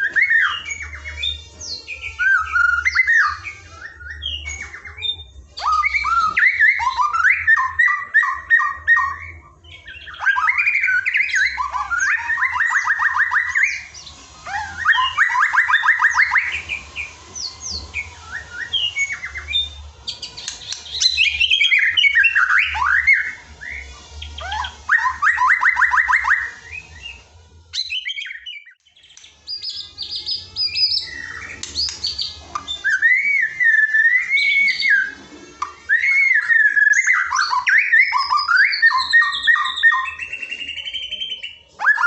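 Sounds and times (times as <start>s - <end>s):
songbird trills and whistles: 0.0s - 42.0s.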